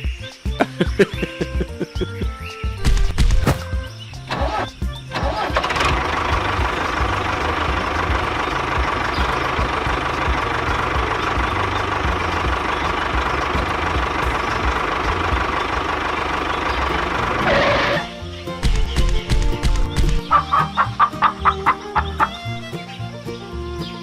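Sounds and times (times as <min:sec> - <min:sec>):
small motor starting and whining: 0:04.3 - 0:09.9, 0:16.4 - 0:18.4.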